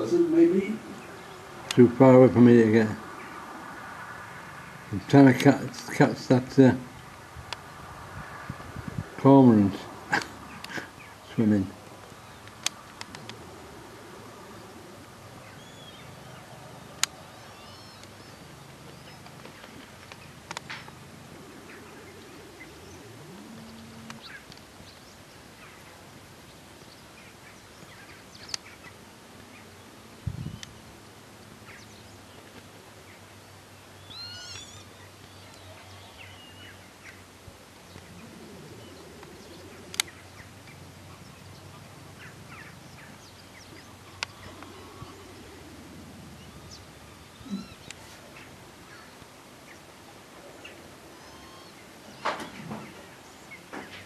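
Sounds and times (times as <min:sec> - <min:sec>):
small bird calls: 0:09.9 - 0:54.0
sharp clicks: 0:11.8 - 0:13.4, 0:39.2 - 0:40.2.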